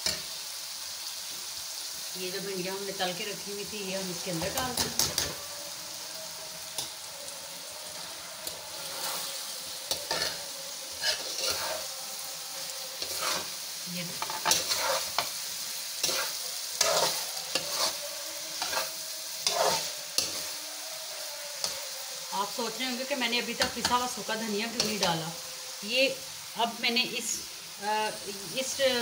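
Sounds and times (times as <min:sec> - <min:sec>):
masala sizzling in oil: 0:00.0 - 0:29.0
spatula scraping a metal pan: 0:04.3 - 0:05.4, 0:08.4 - 0:12.0, 0:13.0 - 0:20.6.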